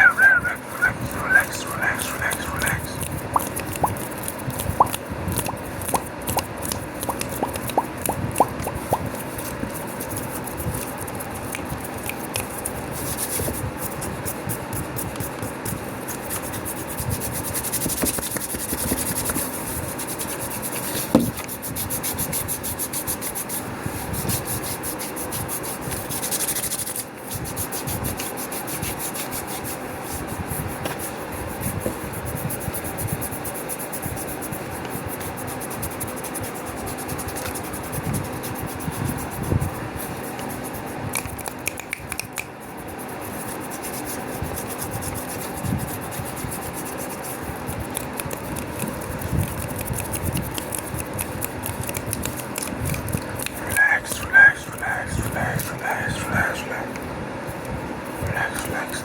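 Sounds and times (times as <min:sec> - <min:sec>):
hand rubbing and skin scratching: 0:00.0 - 0:59.0
mouth clicks and pops: 0:00.1 - 0:04.0, 0:04.7 - 0:09.2.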